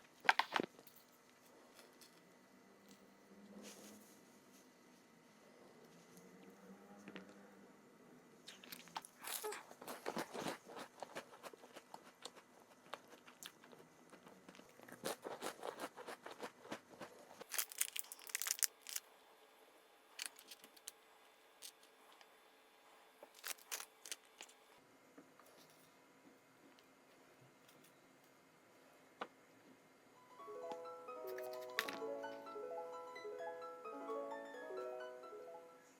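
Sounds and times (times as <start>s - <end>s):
crunchy snack chewing: 8.5s - 19.0s, 23.3s - 24.6s.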